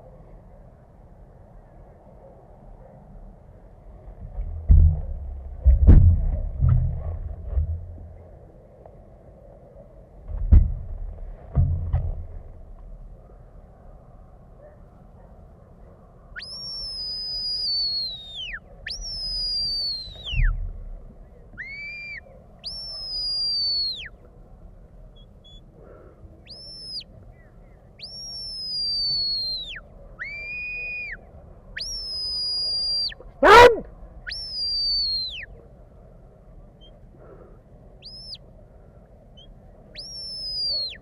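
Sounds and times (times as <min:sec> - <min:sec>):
high whistle blasts: 0:16.4 - 0:20.6, 0:21.6 - 0:24.1, 0:26.5 - 0:27.1, 0:28.0 - 0:31.2, 0:31.8 - 0:35.5, 0:38.0 - 0:38.4, 0:40.0 - 0:41.0.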